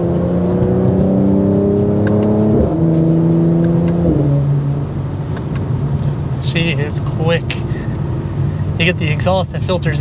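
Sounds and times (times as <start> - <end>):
car engine accelerating hard: 0.0 - 5.2.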